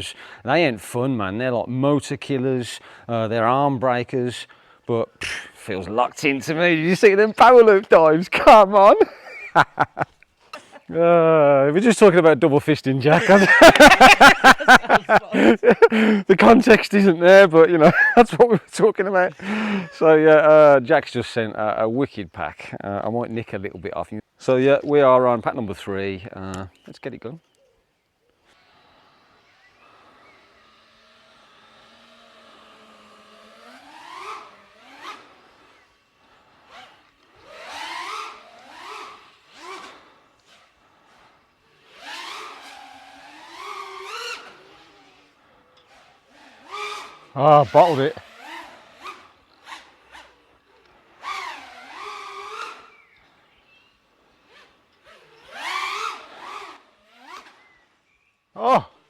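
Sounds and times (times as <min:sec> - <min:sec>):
drone motors whining: 0:28.4 - 0:59.0.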